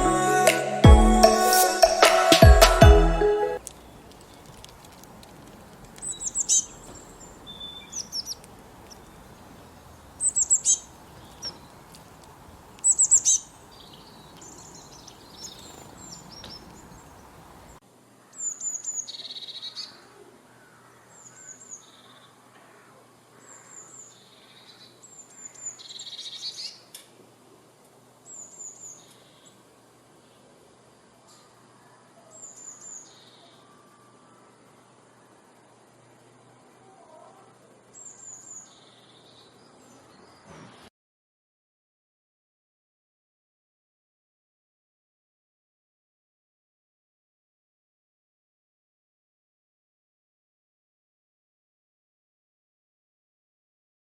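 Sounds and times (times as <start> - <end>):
birds chirping: 0.0 - 22.3
steady background hiss: 0.0 - 40.6.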